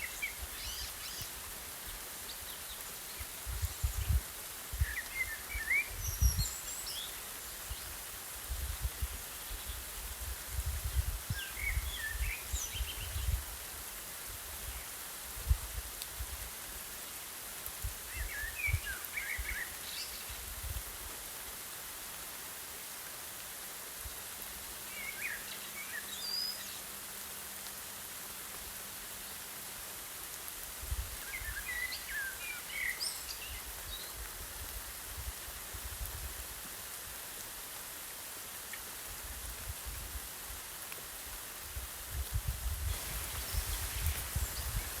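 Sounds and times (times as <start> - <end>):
light rain hiss: 0.0 - 45.0
breeze gusts rumbling: 42.1 - 45.0.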